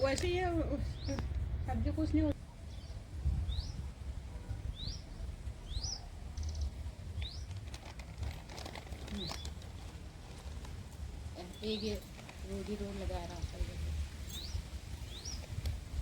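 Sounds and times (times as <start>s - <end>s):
small bird chirping: 0.0s - 2.1s, 2.7s - 3.9s, 4.6s - 7.6s, 14.2s - 15.8s
low rumble: 0.0s - 7.8s.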